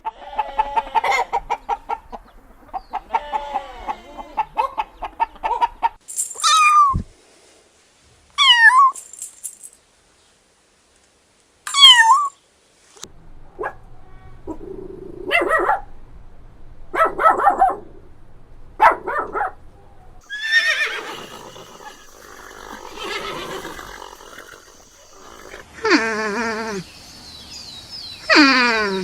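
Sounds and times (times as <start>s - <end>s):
animal calls: 18.8s - 25.7s.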